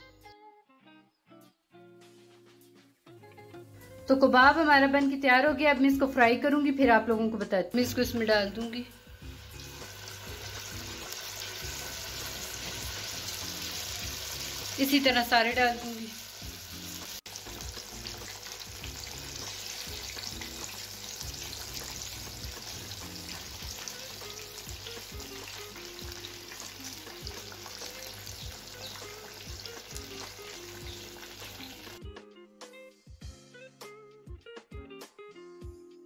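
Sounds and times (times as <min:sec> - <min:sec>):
food sizzling in hot oil: 0:07.8 - 0:32.0.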